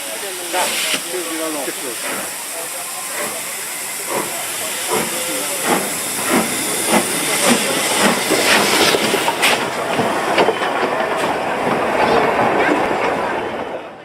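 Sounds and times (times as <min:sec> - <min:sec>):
steam hissing: 0:00.0 - 0:12.2
steam locomotive exhaust chuffs: 0:00.0 - 0:13.6.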